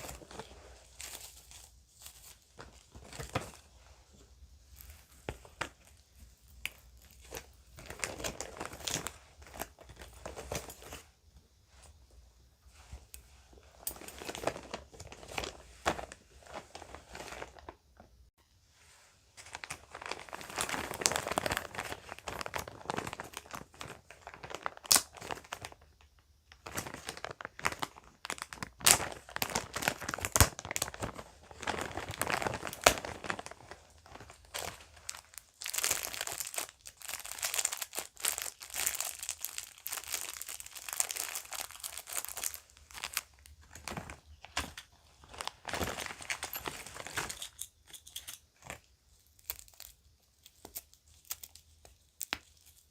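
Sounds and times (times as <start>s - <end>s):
bag crinkling: 13.8s - 17.8s, 19.4s - 26.0s, 26.6s - 48.0s.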